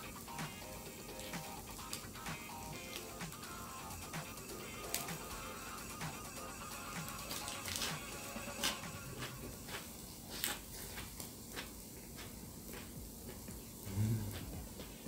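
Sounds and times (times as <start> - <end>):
chewing food: 1.0 - 3.2, 7.0 - 15.0.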